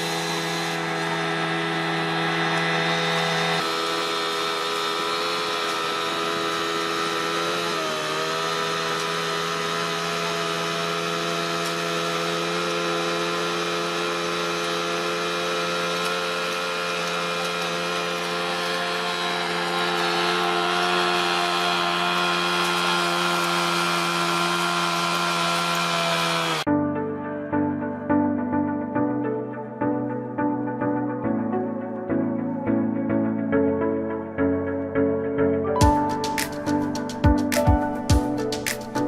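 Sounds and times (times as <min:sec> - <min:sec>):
heavy machine engine running: 0:00.0 - 0:26.7.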